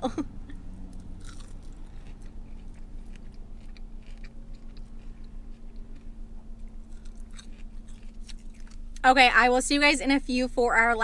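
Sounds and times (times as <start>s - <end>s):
low hum: 0.0s - 11.0s
person chewing crunchy fries: 0.8s - 9.0s.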